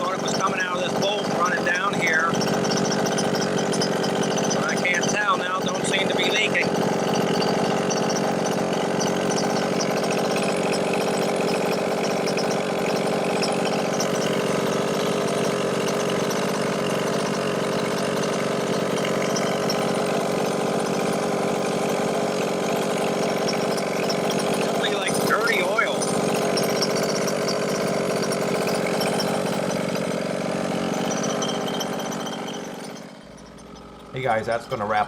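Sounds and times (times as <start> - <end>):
small two-stroke engine idling: 0.0 - 35.0.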